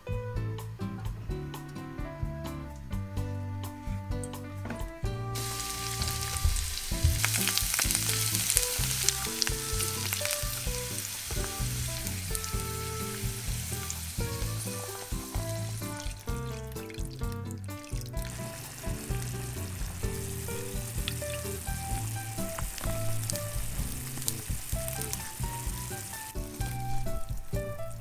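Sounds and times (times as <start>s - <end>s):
background music: 0.0s - 28.0s
vegetables sizzling in a frying pan: 5.4s - 16.2s, 18.2s - 27.1s.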